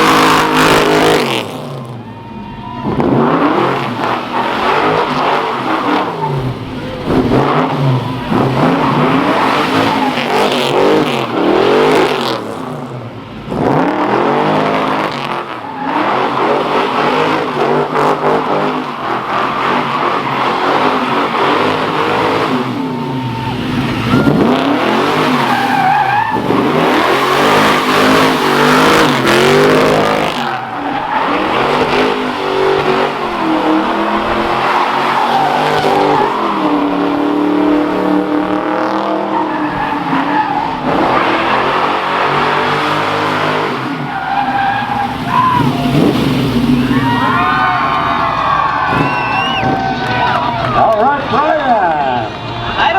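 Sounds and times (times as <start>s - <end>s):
car engine revving: 0.0s - 52.9s
tyres squealing: 15.6s - 38.4s, 39.0s - 51.6s.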